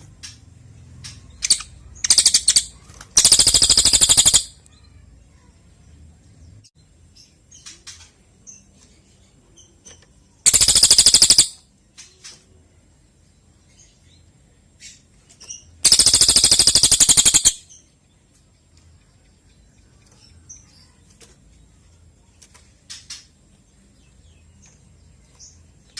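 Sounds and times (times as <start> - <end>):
bird chirps and clicks: 1.0 - 5.0, 9.6 - 12.5, 14.8 - 21.6
jay rattling calls: 1.4 - 4.5, 10.5 - 11.5, 15.8 - 17.6.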